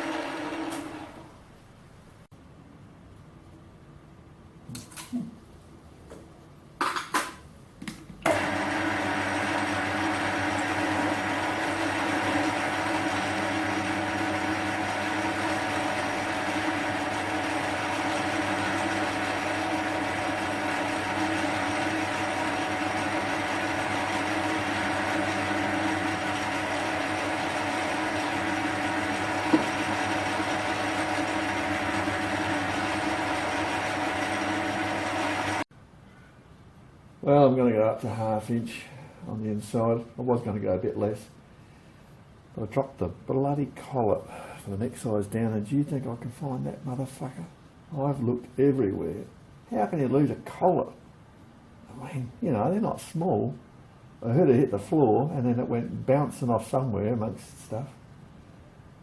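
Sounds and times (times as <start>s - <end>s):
metal lathe humming and whining: 8.4s - 35.6s.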